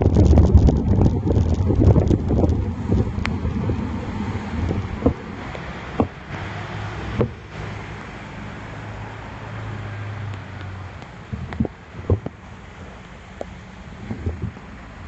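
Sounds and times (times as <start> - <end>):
low steady hum: 0.0 - 8.1
road and traffic noise: 0.0 - 15.0
wind and rain on microphone: 0.0 - 15.0.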